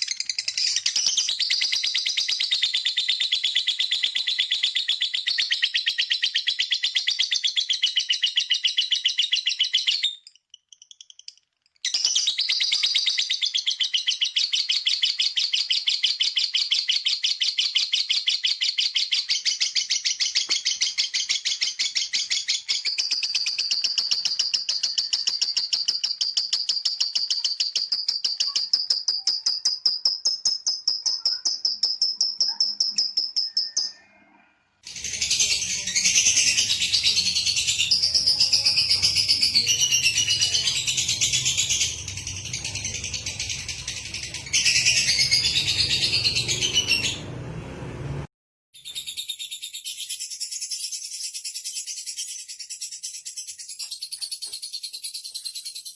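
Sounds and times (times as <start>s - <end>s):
bird chattering trill: 12.2s - 34.0s, 34.9s - 47.2s.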